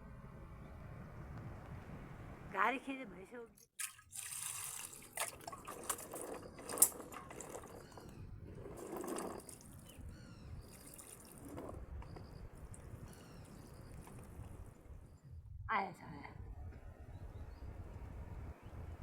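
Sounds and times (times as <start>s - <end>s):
water splashing and dripping: 3.6s - 8.1s, 10.6s - 12.0s.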